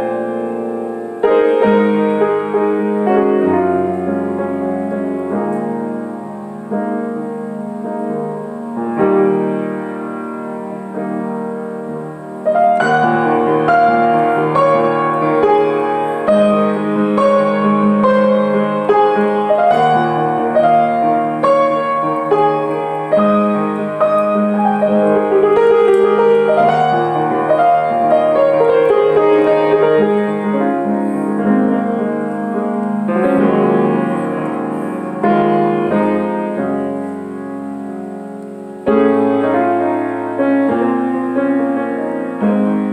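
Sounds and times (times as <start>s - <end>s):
piano music: 0.0s - 42.9s.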